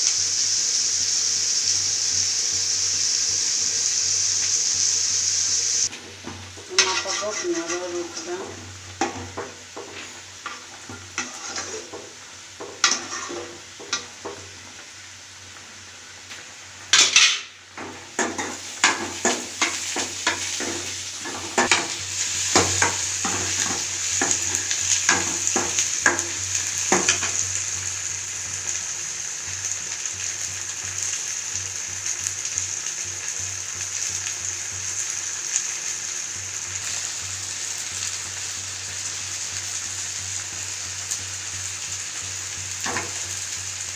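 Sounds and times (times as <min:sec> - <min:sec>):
food sizzling in a pan: 0:00.0 - 0:43.9
metal utensil clinking on pan: 0:06.7 - 0:09.5, 0:16.9 - 0:17.5.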